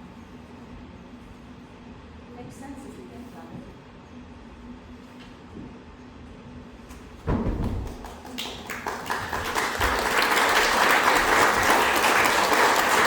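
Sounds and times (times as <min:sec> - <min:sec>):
low thump: 0:07.2 - 0:08.0
audience applause: 0:08.0 - 0:13.0.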